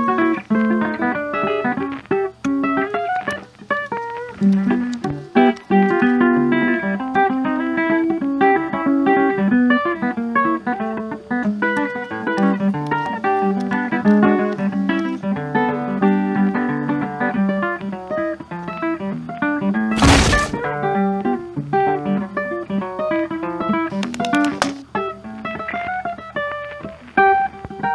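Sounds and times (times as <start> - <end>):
burst of noise: 20.0 - 20.6.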